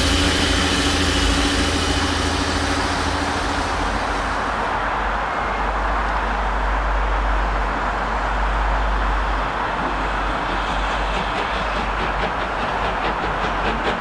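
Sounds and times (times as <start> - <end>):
engine humming: 0.0 - 6.2
train rumbling on tracks: 0.0 - 14.0.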